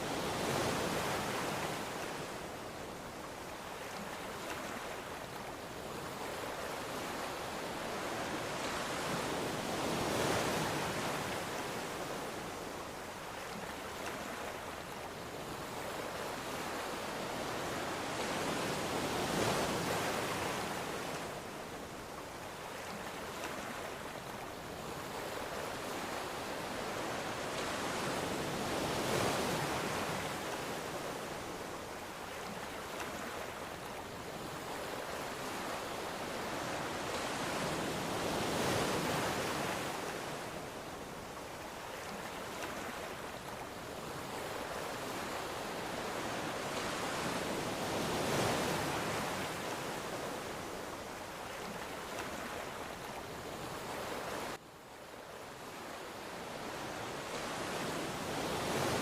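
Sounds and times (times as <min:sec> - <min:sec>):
ocean waves washing ashore: 0:00.0 - 0:59.0.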